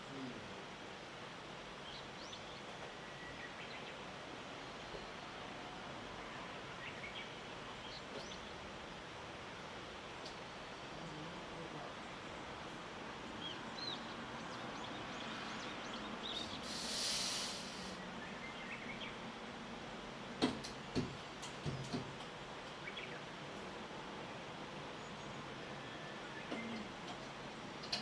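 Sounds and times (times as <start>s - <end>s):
steady background hiss: 0.0s - 28.0s
small birds chirping: 6.8s - 9.2s, 10.0s - 19.4s, 21.6s - 23.4s, 26.2s - 28.0s
burst of high hissing: 16.6s - 18.0s.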